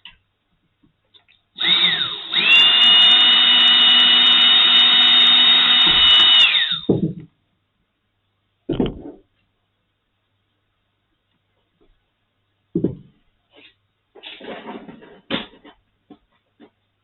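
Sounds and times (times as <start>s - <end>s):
small power drill whining: 1.6s - 6.9s.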